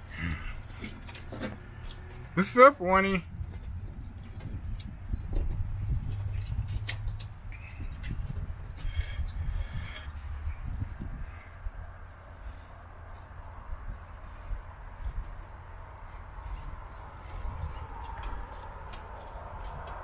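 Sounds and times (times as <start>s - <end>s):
wind rumble on microphone: 3.2s - 12.4s, 13.4s - 20.0s.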